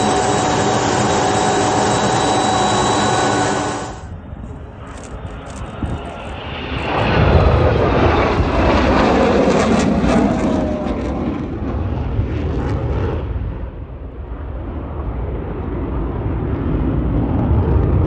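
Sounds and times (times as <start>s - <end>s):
falling engine whine: 0.0s - 13.1s
aircraft engine rumble: 0.0s - 18.0s.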